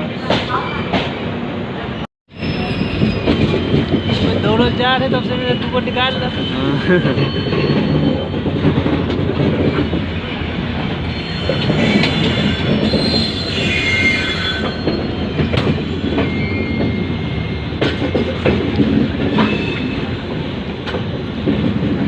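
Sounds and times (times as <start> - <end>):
train wheels rumbling: 0.0 - 22.0
wheel-on-rail squeal: 2.4 - 8.5, 11.0 - 18.3, 19.2 - 20.2.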